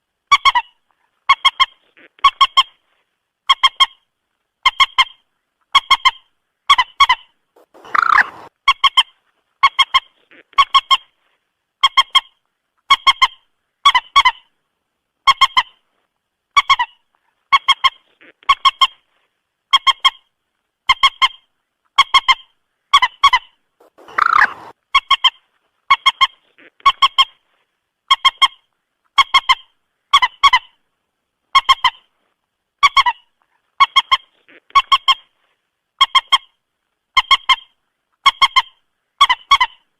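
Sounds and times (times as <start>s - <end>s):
moorhen honking calls: 7.6s - 8.5s, 23.8s - 24.7s.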